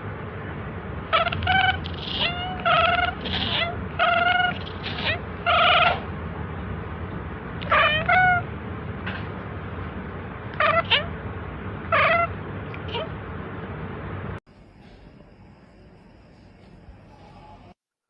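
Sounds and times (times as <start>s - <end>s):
cat meowing: 1.1s - 6.1s, 7.6s - 8.5s, 10.5s - 11.2s, 11.9s - 13.2s.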